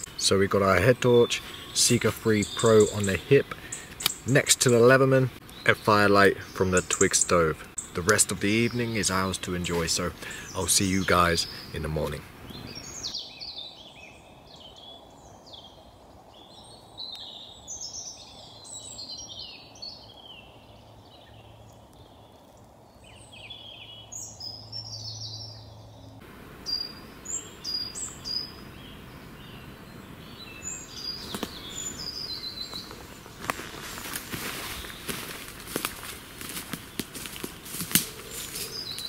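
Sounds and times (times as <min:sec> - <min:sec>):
faint steady hiss: 0:00.0 - 0:24.3, 0:26.1 - 0:39.0
birds singing: 0:00.0 - 0:39.0.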